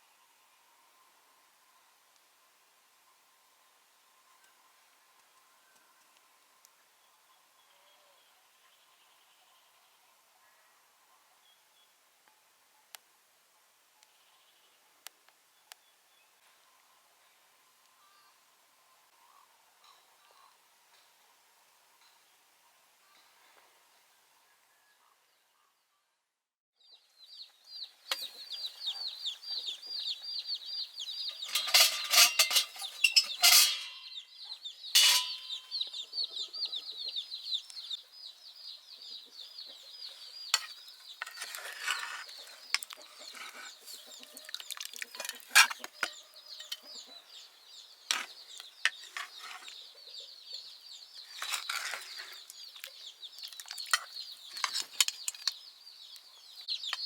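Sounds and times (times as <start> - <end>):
chickens cheeping and clucking: 27.3 - 57.0.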